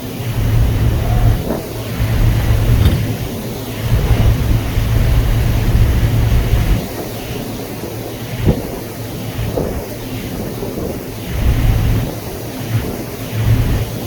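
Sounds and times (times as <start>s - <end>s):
wind buffeting the microphone: 0.1s - 14.0s
low rumble: 0.4s - 6.8s.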